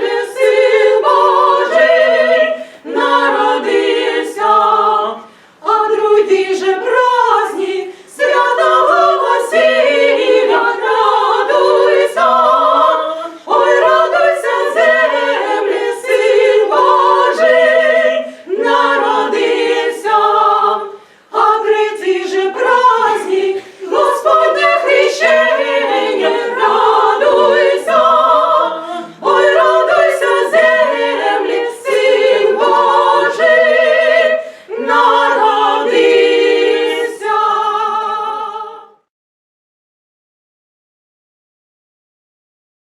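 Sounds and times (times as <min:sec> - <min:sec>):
a cappella choir singing: 0:00.0 - 0:39.1
singers breathing: 0:02.5 - 0:02.9, 0:05.2 - 0:05.6, 0:07.9 - 0:08.2, 0:18.3 - 0:18.5, 0:20.9 - 0:21.4, 0:23.6 - 0:23.9, 0:28.8 - 0:29.2, 0:34.4 - 0:34.8.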